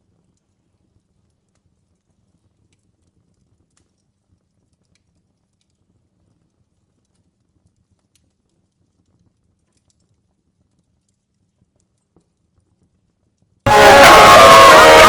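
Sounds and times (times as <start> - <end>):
loud music: 13.7 - 15.0.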